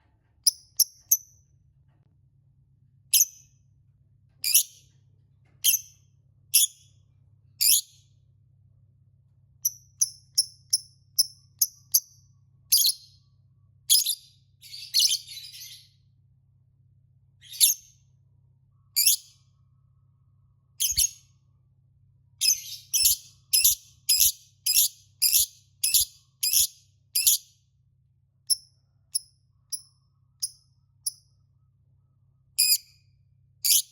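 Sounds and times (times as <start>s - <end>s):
lovebird chirping: 9.6s - 13.2s, 13.9s - 15.9s, 17.4s - 18.0s, 19.0s - 19.4s, 20.8s - 21.3s, 22.4s - 27.5s, 32.6s - 33.0s, 33.6s - 33.9s.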